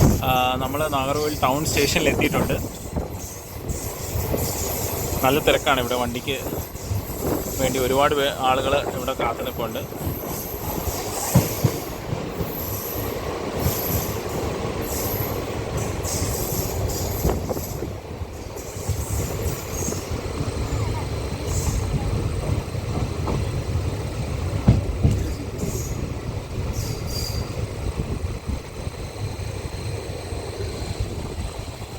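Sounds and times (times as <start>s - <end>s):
train wheel squeals: 0.0s - 7.9s, 9.4s - 22.4s, 25.1s - 26.1s, 26.7s - 27.8s
train rumble: 0.0s - 31.9s.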